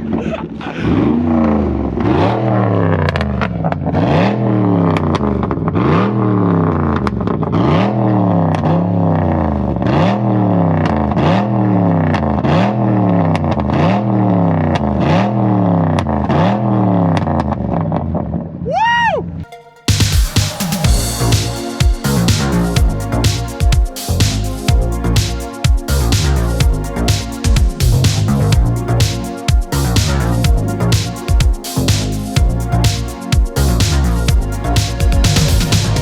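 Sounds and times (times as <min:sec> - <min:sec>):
car engine revving: 0:00.8 - 0:17.5, 0:31.8 - 0:36.0.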